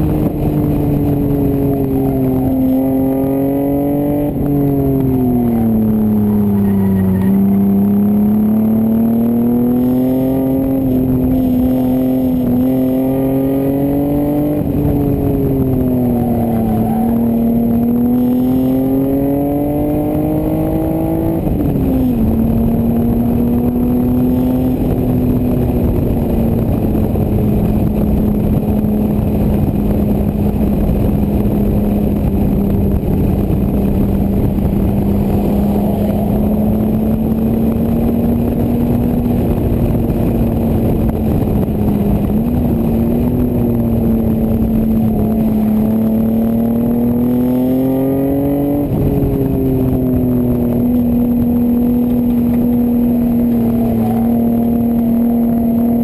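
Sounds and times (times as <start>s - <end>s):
car engine revving: 0.0s - 56.0s
wind noise: 0.0s - 56.0s.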